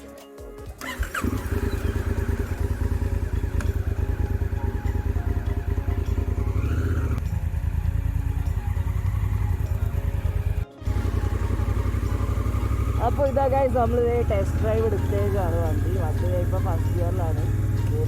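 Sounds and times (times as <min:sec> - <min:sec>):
motorcycle engine running: 0:00.8 - 0:18.0.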